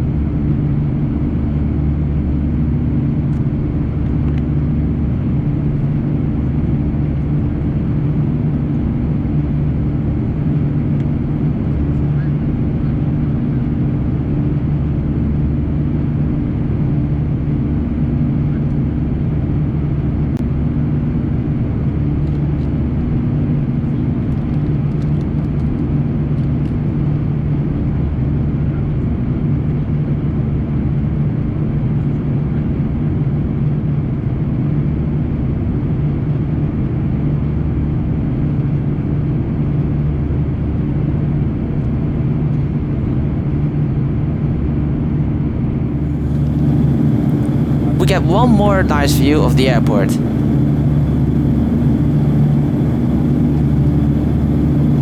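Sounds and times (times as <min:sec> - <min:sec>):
jet engines low hum: 0:46.0 - 0:55.0.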